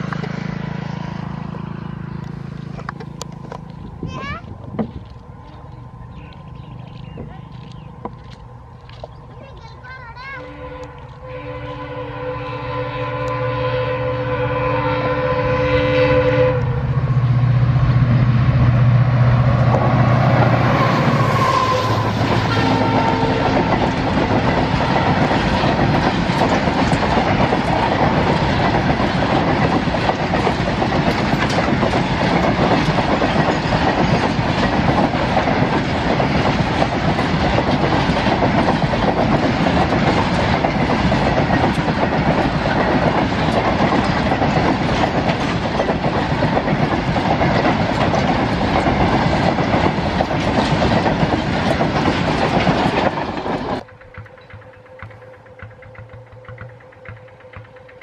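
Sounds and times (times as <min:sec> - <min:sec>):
locomotive engine drone: 0:00.0 - 0:58.0
train wheels clattering over rail joints: 0:02.3 - 0:10.3, 0:18.8 - 0:58.0
train horn blast: 0:10.4 - 0:18.0, 0:20.4 - 0:25.5, 0:54.3 - 0:58.0.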